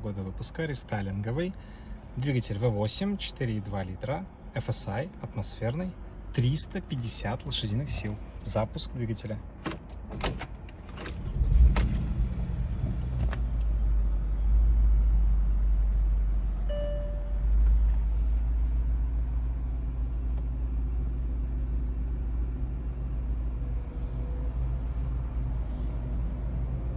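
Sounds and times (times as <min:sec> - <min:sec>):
short beep: 0:16.6 - 0:17.6.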